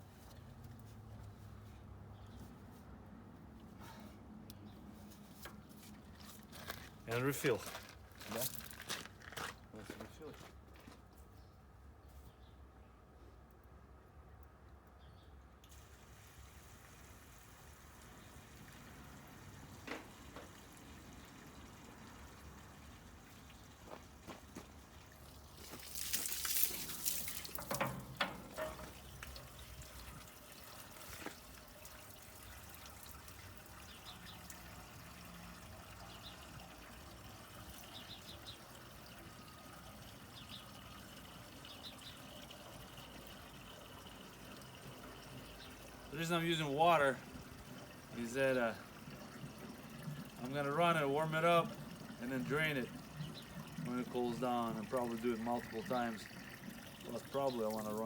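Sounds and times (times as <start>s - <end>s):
water pouring into radiator: 15.6s - 58.0s
sharp clicks and knocks: 27.6s - 29.4s.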